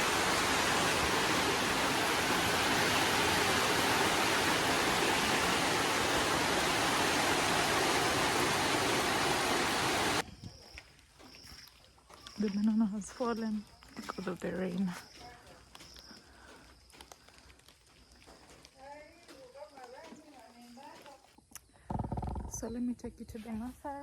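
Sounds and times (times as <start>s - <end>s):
heavy rain: 0.0s - 10.2s.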